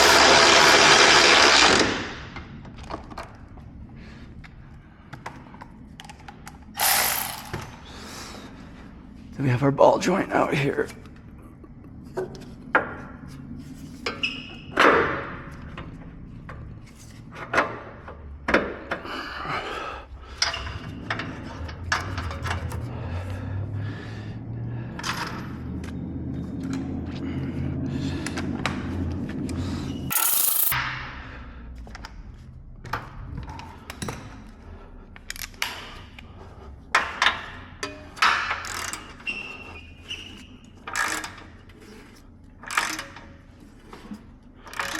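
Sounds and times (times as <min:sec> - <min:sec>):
metal tools clinking and knocking: 0:06.8 - 0:07.7, 0:30.1 - 0:30.8.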